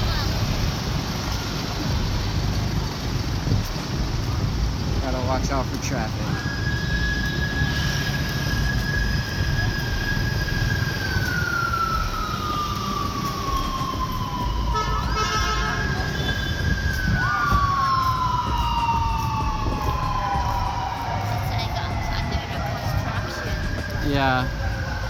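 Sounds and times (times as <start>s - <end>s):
street traffic rumble: 0.0s - 25.0s
siren wailing: 5.2s - 25.0s.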